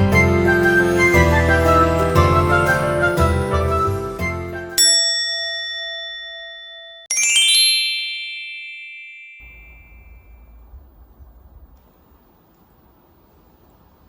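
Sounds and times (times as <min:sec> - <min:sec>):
bright chime strikes: 0:04.8 - 0:10.6
cascade of high tones: 0:07.1 - 0:10.6.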